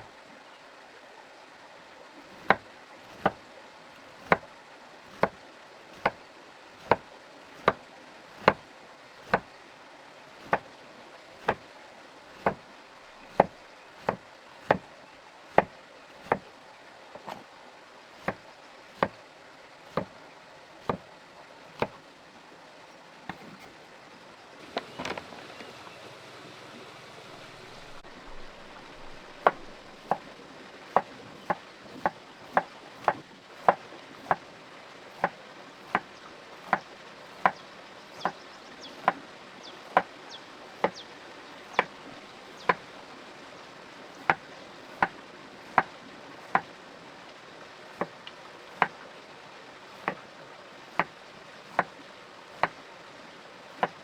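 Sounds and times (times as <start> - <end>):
faint steady hiss: 0.0 - 54.0
sharp evenly spaced knocks: 2.4 - 3.4, 4.2 - 4.4, 6.8 - 7.0, 7.6 - 7.8, 8.4 - 8.6, 9.2 - 9.5, 10.4 - 10.6, 12.4 - 12.6, 13.3 - 14.8, 15.5 - 16.4, 20.8 - 21.0, 29.3 - 30.3, 30.9 - 34.4, 35.2 - 37.6, 38.2 - 38.4, 40.8 - 41.0, 44.2 - 45.9, 46.5 - 46.7, 48.7 - 49.0, 50.0 - 50.2, 51.7 - 51.9, 52.6 - 52.8, 53.8 - 54.0.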